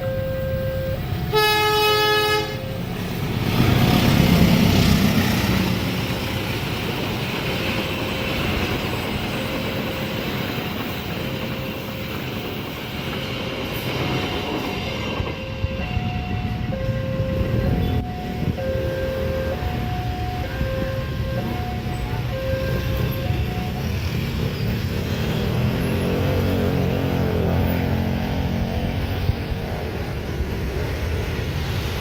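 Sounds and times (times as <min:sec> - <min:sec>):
level crossing warning beeps: 0:00.0 - 0:01.4, 0:14.1 - 0:24.8
train wheels rumbling on rails: 0:00.0 - 0:32.0
train horn: 0:01.3 - 0:02.8.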